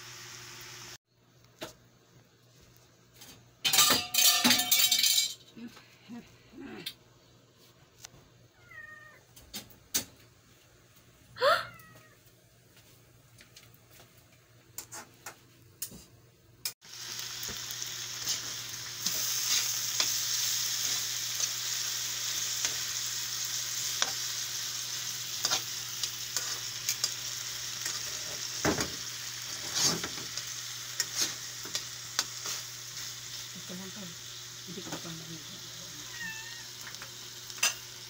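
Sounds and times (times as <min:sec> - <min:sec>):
pork sizzling in a wok: 0:00.0 - 0:01.0, 0:16.7 - 0:38.0
metal tongs scraping a pan: 0:03.6 - 0:05.4, 0:18.2 - 0:23.0, 0:25.0 - 0:28.6, 0:29.4 - 0:33.4.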